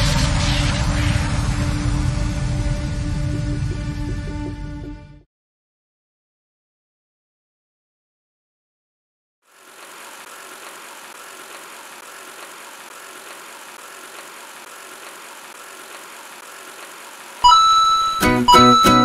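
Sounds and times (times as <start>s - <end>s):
robot vacuum cleaner whirring: 9.5s - 18.9s.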